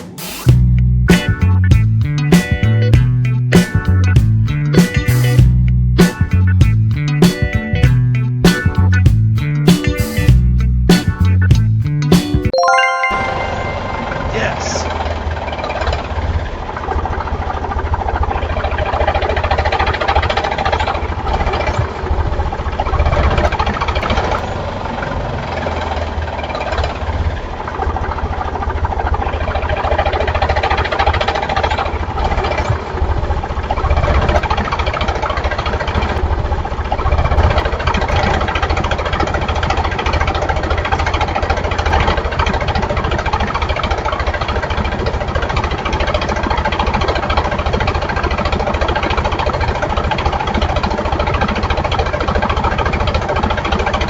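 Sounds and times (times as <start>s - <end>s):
tractor engine chugging idle: 15.0s - 54.0s.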